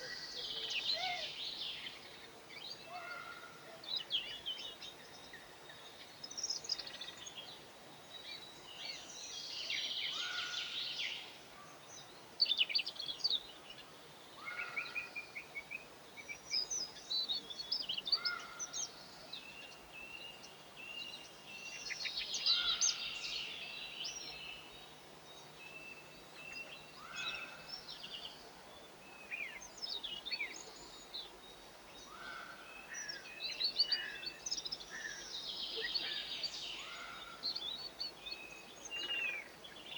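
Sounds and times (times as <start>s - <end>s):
faint steady background noise: 0.0s - 39.9s
songbirds chirping and singing: 11.9s - 39.9s.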